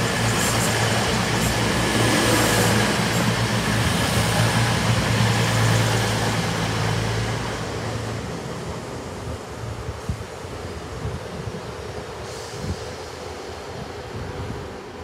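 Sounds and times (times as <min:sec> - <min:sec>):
diesel train engine hum: 0:00.0 - 0:15.0
train wheels running noise: 0:00.0 - 0:15.0.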